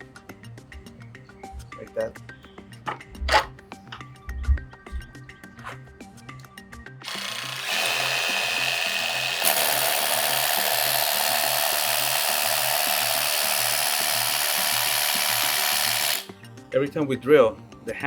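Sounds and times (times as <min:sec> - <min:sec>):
music with steady beat: 0:00.0 - 0:07.2
hammer drill boring into wall: 0:07.0 - 0:16.3.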